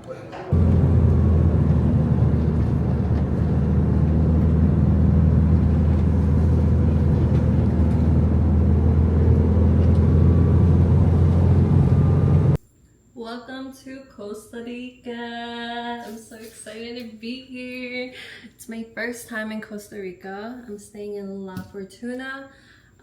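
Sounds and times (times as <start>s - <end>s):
moving vehicle rumble: 0.3s - 12.6s.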